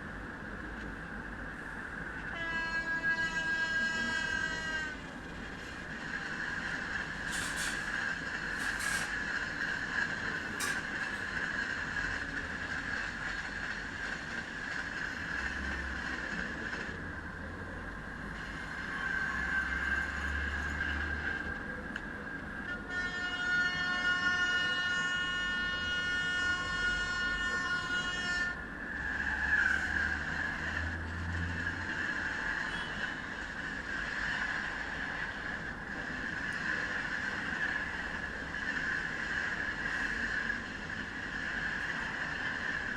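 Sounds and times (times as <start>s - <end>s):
train running at speed: 0.0s - 42.9s
train horn: 2.2s - 5.2s, 22.6s - 31.8s, 32.5s - 33.3s.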